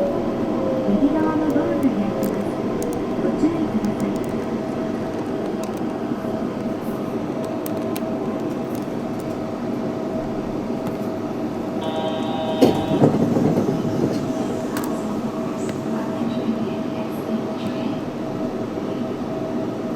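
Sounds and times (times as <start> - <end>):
train running noise: 0.0 - 19.9.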